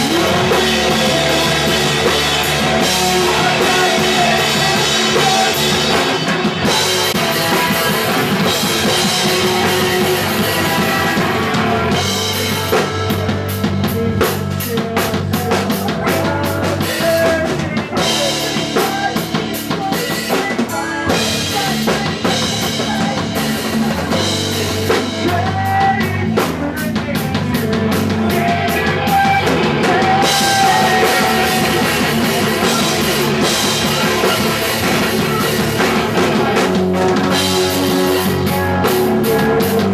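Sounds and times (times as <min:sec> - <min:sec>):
punk rock band playing live: 0:00.0 - 0:39.9
steady bass line: 0:00.0 - 0:39.9
drum hits: 0:21.3 - 0:39.6.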